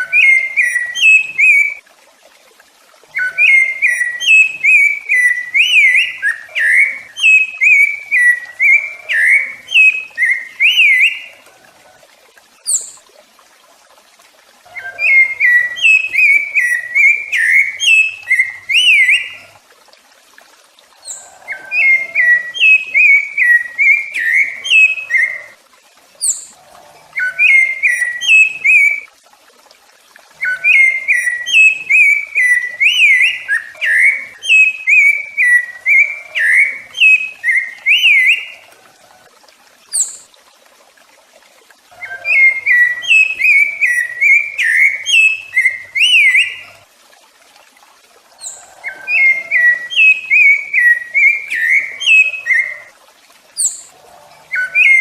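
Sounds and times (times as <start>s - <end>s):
thrush singing whistled phrases: 0.0s - 1.8s, 3.1s - 11.4s, 14.7s - 19.6s, 21.0s - 25.6s, 27.2s - 29.1s, 30.4s - 38.6s, 42.0s - 46.8s, 48.4s - 52.9s, 54.5s - 55.0s.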